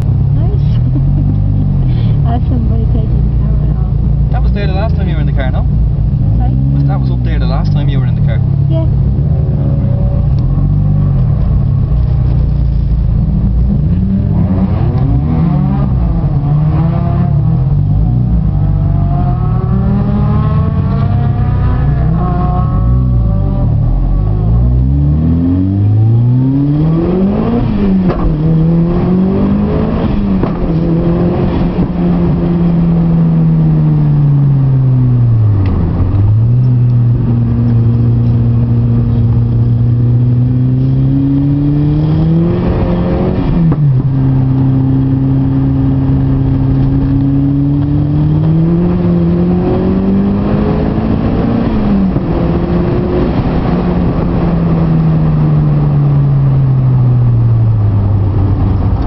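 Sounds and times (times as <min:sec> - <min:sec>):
car engine accelerating through gears: 0:00.0 - 0:59.0.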